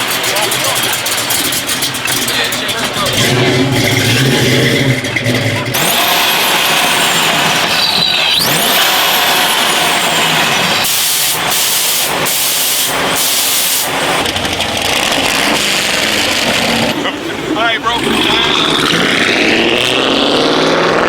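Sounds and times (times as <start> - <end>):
car engine running: 0.0 - 21.0
loud hiss bursts: 5.8 - 14.2.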